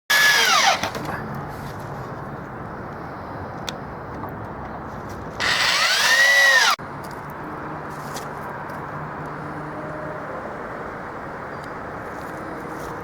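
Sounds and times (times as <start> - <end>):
power drill driving a screw: 0.1 - 1.0, 5.4 - 6.8.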